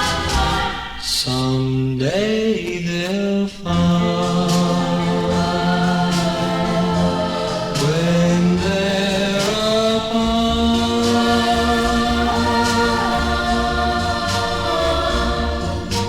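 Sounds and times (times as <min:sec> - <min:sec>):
voices singing in harmony: 0:00.0 - 0:16.0
light backing band: 0:03.8 - 0:16.0.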